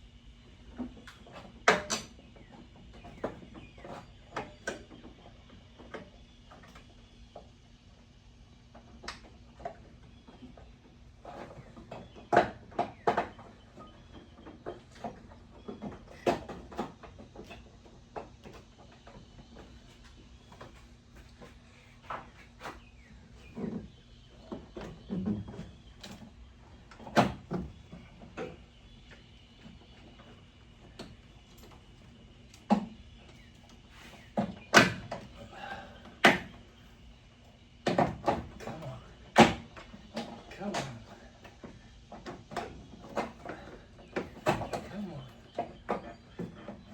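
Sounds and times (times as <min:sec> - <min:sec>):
knocks and clunks on car parts: 0:36.2 - 0:36.6, 0:37.8 - 0:38.7.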